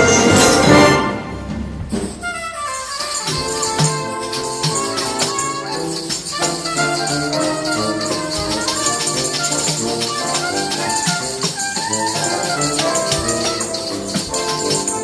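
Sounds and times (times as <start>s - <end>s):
rattling percussion beat: 0.0s - 15.0s.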